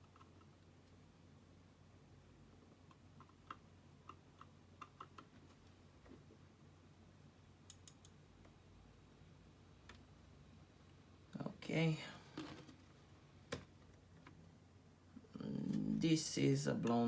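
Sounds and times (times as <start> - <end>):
low steady hum: 0.0 - 17.0
sharp clicks: 7.7 - 8.2.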